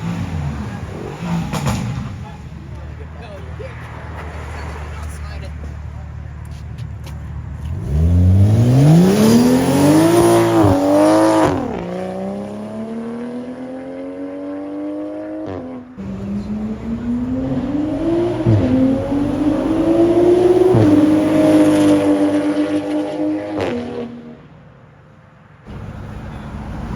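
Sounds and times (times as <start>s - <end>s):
car engine accelerating through gears: 0.0s - 3.0s, 7.0s - 24.4s.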